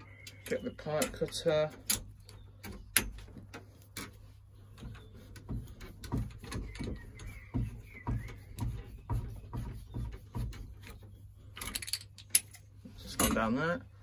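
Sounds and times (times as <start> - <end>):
pipe cutter squeaks: 0.0 - 3.2, 4.0 - 11.3
pipe cutter scraping strokes: 3.1 - 11.6.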